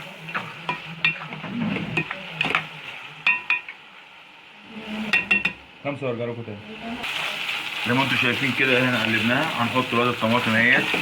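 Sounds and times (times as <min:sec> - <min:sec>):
spoon scraping a pan: 0:00.0 - 0:03.8, 0:04.7 - 0:05.6
faint sizzle: 0:00.0 - 0:11.0.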